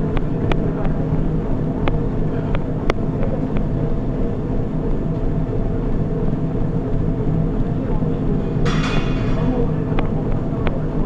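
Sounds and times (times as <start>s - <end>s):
treadmill motor and belt hum: 0.0s - 11.0s.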